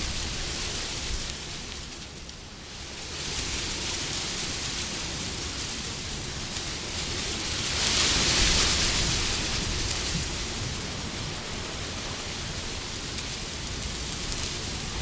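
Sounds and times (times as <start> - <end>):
wind blowing: 0.0 - 1.4.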